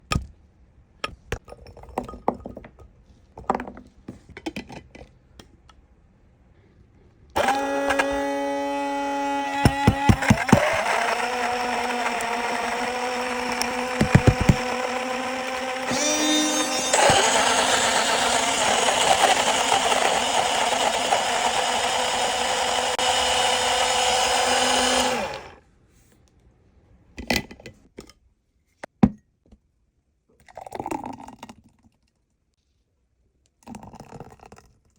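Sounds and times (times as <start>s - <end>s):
blender motor humming: 7.4s - 25.6s
fruit knocking blender blades: 7.4s - 25.6s.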